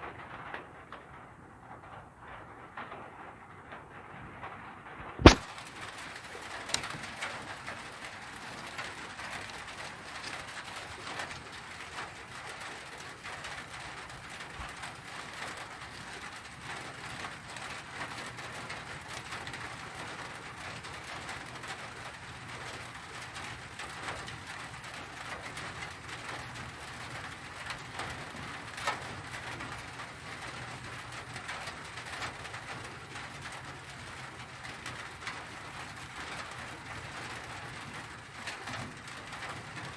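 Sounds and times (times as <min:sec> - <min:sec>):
small sharp clicks: 0:05.2 - 0:05.5.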